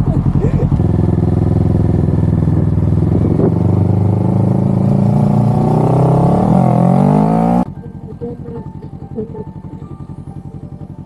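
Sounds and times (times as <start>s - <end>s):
motorcycle engine pulling away: 0.0s - 11.0s.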